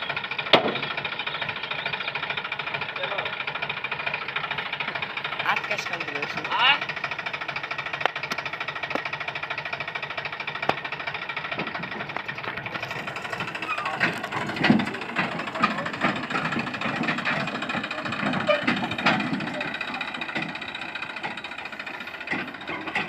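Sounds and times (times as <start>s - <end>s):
tractor diesel engine knocking: 0.0s - 23.0s.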